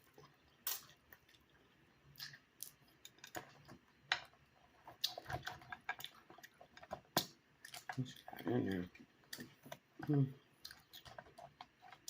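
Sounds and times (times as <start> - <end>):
crab shells cracking: 0.6 - 1.5, 2.1 - 12.0
chewing: 4.4 - 12.0.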